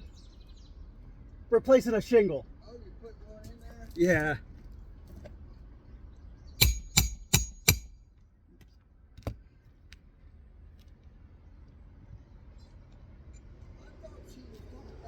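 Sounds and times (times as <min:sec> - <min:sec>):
hammer striking nail: 0:06.6 - 0:08.0.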